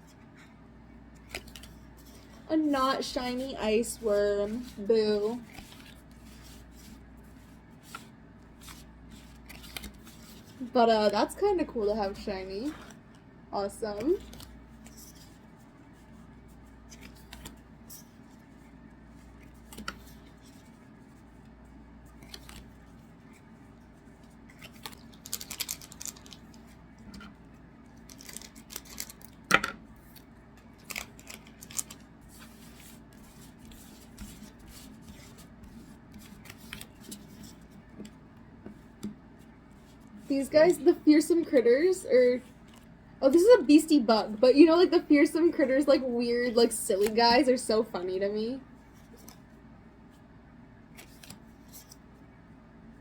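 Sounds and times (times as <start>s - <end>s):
cards being handled and stacked: 1.1s - 11.3s, 14.0s - 41.5s, 48.9s - 49.6s, 50.9s - 52.2s.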